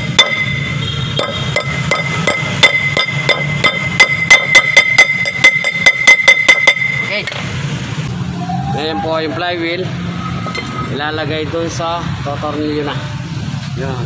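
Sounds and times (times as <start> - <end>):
hammer tapping on metal: 0.0 - 7.5.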